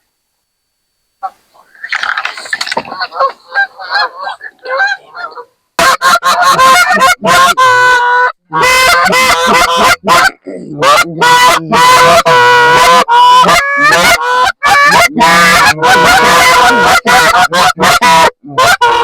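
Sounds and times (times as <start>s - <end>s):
goose call clucking: 1.2s - 19.0s
goose call honks and moans: 1.2s - 19.0s.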